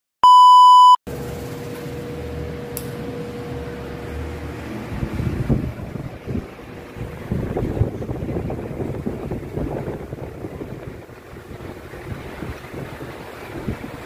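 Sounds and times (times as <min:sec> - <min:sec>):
loud electronic beep: 0:00.2 - 0:01.0
wall fan whirring: 0:01.1 - 0:14.0
air buffeting microphone: 0:03.6 - 0:14.0.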